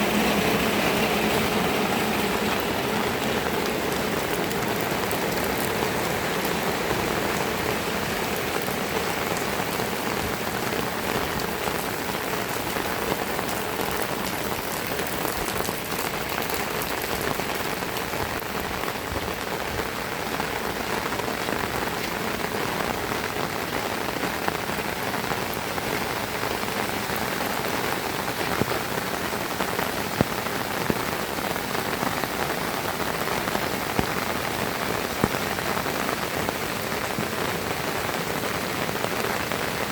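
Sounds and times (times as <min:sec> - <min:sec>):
heavy rain hiss: 0:00.0 - 0:39.9.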